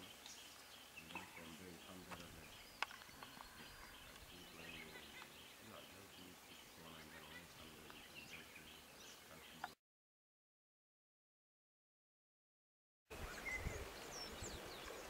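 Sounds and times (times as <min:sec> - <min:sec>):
small birds chirping faintly: 0:00.0 - 0:09.8, 0:13.1 - 0:15.0.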